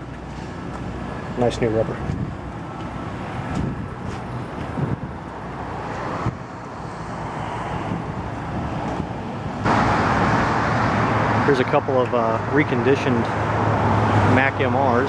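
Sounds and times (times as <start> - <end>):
wind on microphone: 2.0 - 2.6, 3.2 - 9.7.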